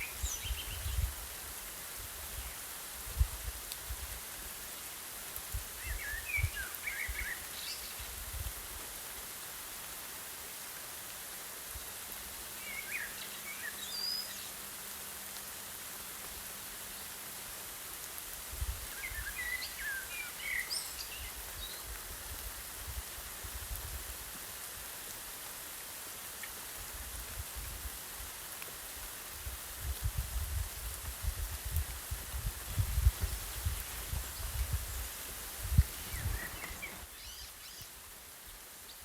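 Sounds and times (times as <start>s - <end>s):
rain falling on grass: 0.0s - 39.0s
bird chirping: 36.0s - 37.9s.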